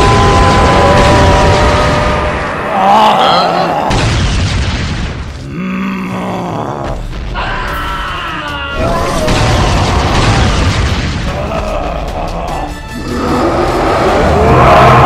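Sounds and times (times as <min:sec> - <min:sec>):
character grunting: 0:02.7 - 0:04.0
heavy booms: 0:03.9 - 0:05.7, 0:08.8 - 0:11.6
background music: 0:05.4 - 0:15.0.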